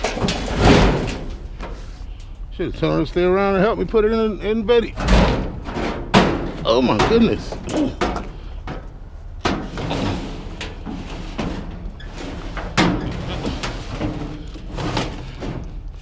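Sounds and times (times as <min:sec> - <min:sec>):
heavy metal bangs in truck bed: 0:00.0 - 0:01.6, 0:04.9 - 0:15.7
scraping and shuffling: 0:00.0 - 0:16.0.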